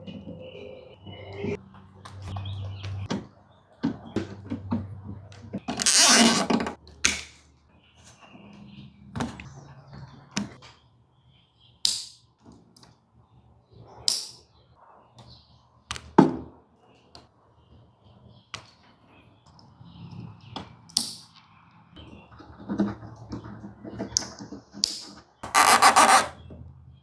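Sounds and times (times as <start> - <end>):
tools clicking and snapping on wires: 11.8 - 12.2, 20.9 - 21.4, 24.2 - 25.2.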